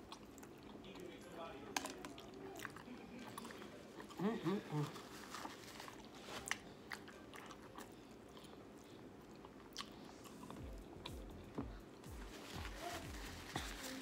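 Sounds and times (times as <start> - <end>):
person chewing wetly: 0.0 - 1.2, 1.8 - 12.1.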